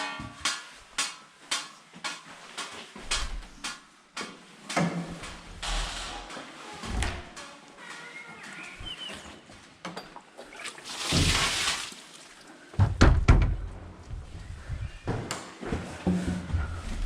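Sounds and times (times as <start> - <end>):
water pouring from bucket: 10.4 - 12.4
container knocks and thumps: 10.9 - 12.0, 12.8 - 13.8.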